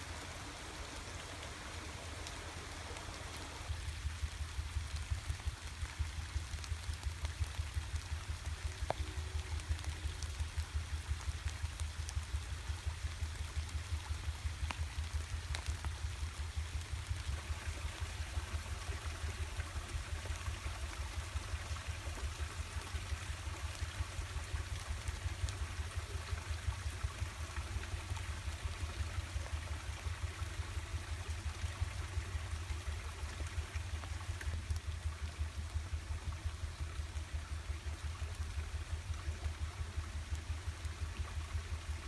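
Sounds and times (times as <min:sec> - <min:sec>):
creek water rushing: 0:00.0 - 0:07.2.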